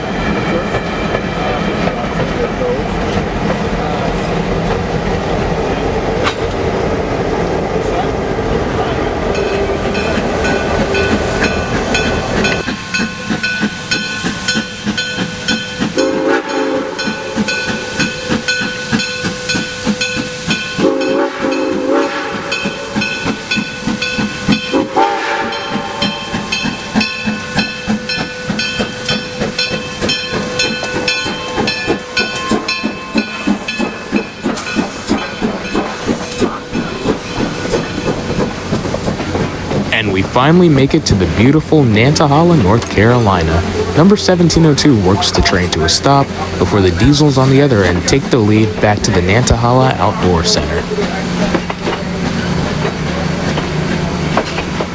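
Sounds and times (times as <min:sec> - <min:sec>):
steam locomotive exhaust beats: 0:00.0 - 0:54.9
steam hissing: 0:10.0 - 0:40.7
steam whistle blasts: 0:16.0 - 0:18.1, 0:20.4 - 0:23.0, 0:24.7 - 0:26.2.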